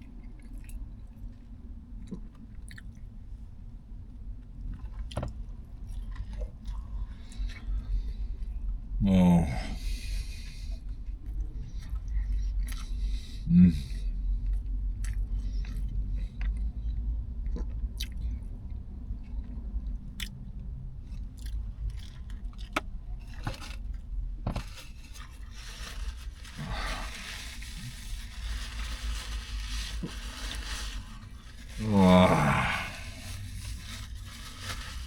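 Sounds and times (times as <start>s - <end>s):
chewing sandwich: 0.1s - 3.1s, 4.4s - 8.6s, 10.3s - 35.0s
crackly scraping: 21.1s - 35.0s.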